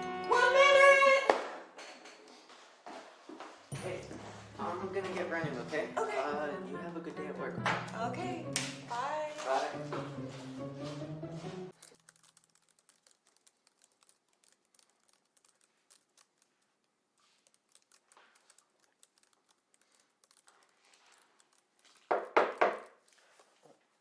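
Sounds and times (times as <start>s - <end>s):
typing on a keyboard: 11.8s - 16.4s, 17.4s - 23.0s.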